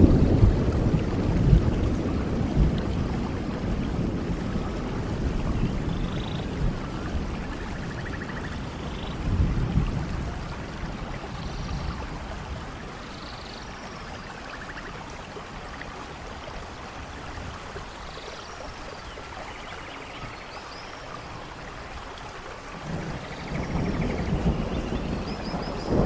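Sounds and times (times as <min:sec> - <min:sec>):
low rumble of thunder: 0:00.0 - 0:15.0, 0:22.6 - 0:26.0
steady rain: 0:00.0 - 0:26.0.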